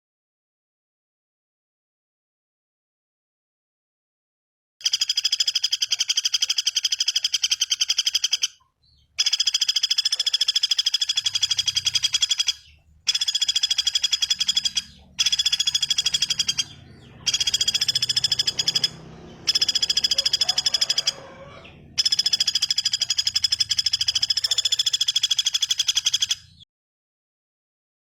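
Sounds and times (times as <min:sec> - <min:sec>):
songbird trills: 0:04.8 - 0:26.6.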